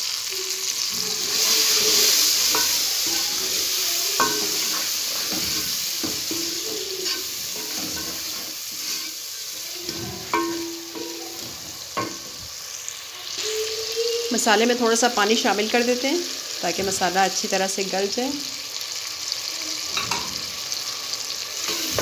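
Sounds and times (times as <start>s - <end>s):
tomatoes sizzling in hot oil: 0.0s - 22.0s
spoon knocking metal pot: 4.2s - 8.2s, 9.9s - 12.4s.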